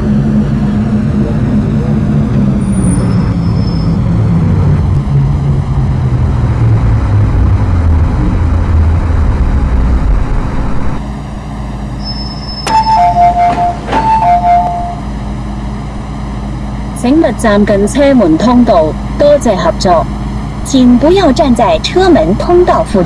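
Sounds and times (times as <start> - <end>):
electric train braking: 2.3 - 4.9, 12.0 - 15.6
two-tone door chime: 12.3 - 15.1.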